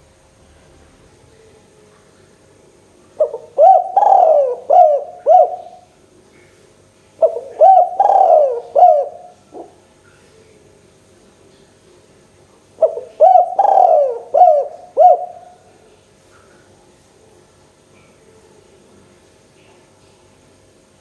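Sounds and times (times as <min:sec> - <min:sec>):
dove cooing: 0:03.1 - 0:05.9, 0:07.2 - 0:09.8, 0:12.8 - 0:15.9.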